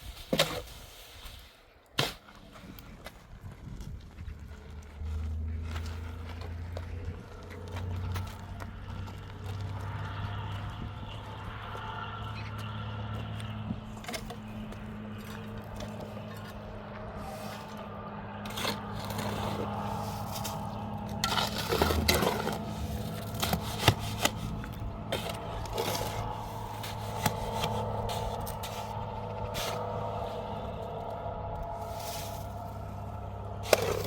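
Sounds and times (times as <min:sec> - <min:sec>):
steady low hum: 0:04.4 - 0:34.0
scraping and rubbing: 0:17.2 - 0:34.0.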